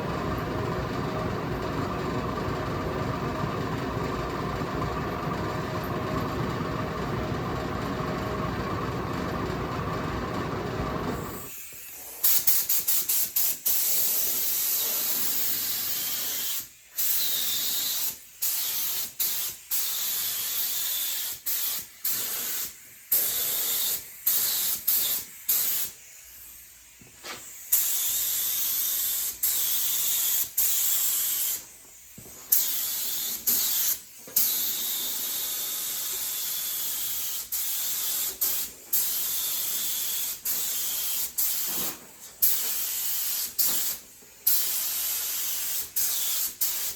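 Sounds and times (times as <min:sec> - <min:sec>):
spray gun air hiss: 0:11.2 - 0:46.9.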